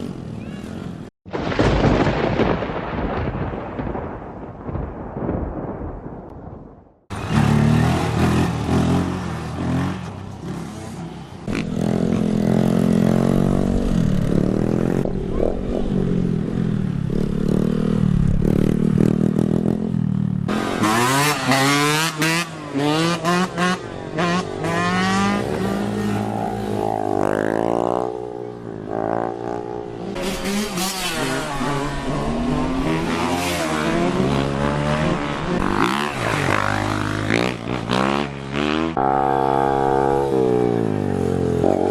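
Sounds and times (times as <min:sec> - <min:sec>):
thunder rumbling: 0:01.3 - 0:07.0
motorcycle engines revving: 0:07.1 - 0:41.9.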